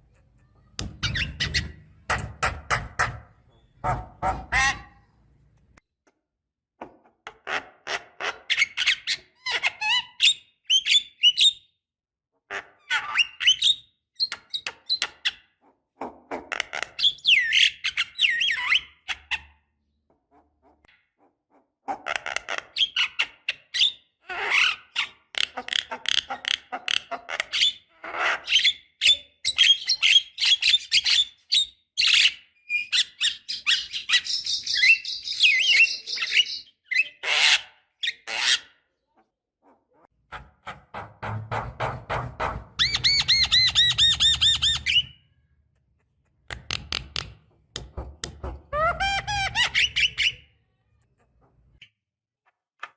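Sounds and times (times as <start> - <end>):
myna bird singing: 29.6 - 37.2.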